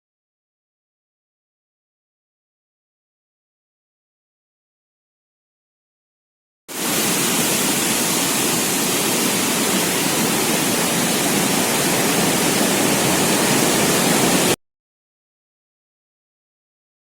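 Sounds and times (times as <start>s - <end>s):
rushing water: 6.7s - 14.6s.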